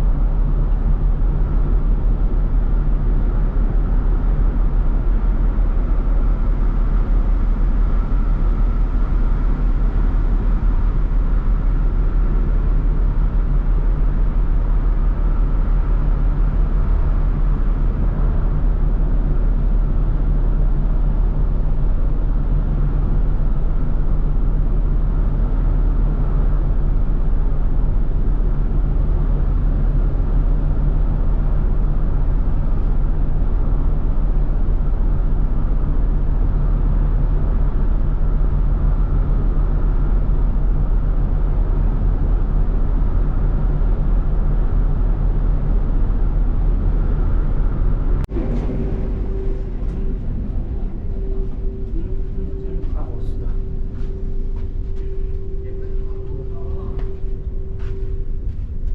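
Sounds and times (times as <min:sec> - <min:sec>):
loud engine drone: 0:38.9 - 0:58.9.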